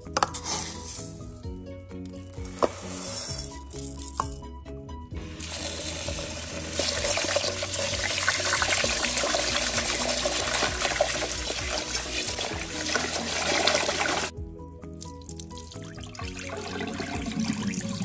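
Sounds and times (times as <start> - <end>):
hand swishing rice in water: 5.4 - 14.3
tap water running into pot: 5.4 - 14.3, 15.6 - 18.0.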